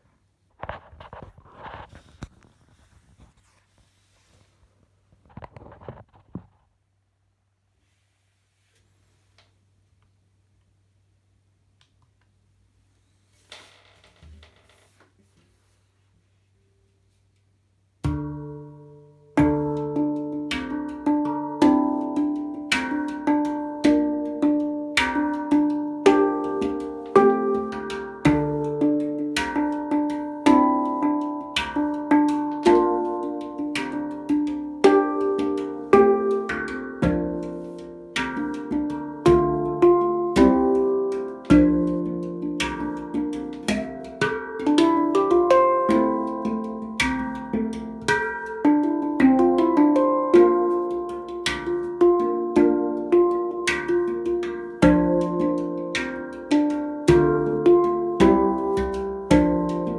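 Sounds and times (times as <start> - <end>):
handpan melody: 18.0 - 59.9.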